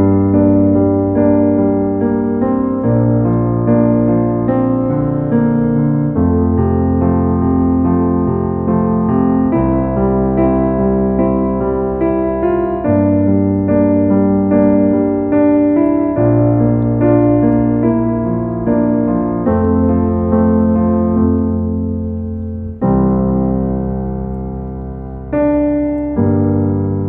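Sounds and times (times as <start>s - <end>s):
slow calm piano music: 0.0s - 27.0s.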